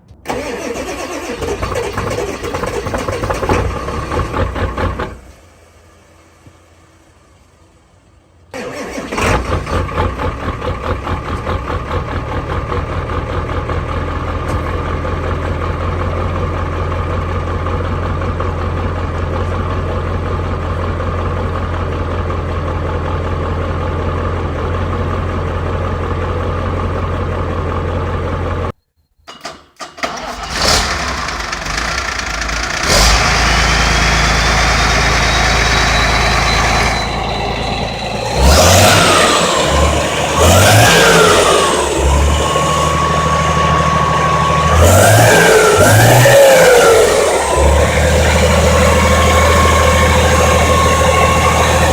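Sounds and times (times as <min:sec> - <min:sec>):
diesel engine starting and idling: 0:00.0 - 0:28.8, 0:29.4 - 0:51.9
second diesel engine running: 0:00.0 - 0:28.8, 0:30.0 - 0:51.9
engine whine rising: 0:30.6 - 0:51.9.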